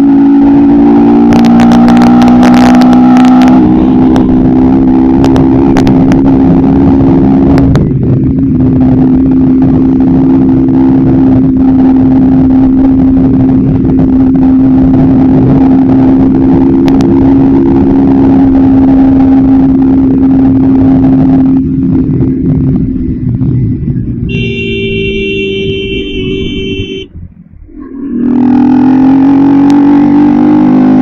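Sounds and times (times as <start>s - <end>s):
motorcycle engine running: 3.4s - 27.8s.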